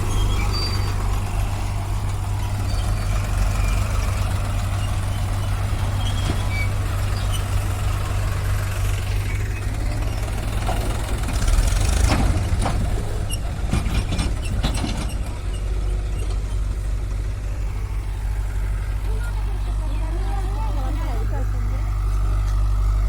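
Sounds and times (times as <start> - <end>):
diesel engine running: 0.0 - 23.0
metallic knocks and clanks: 10.6 - 15.6.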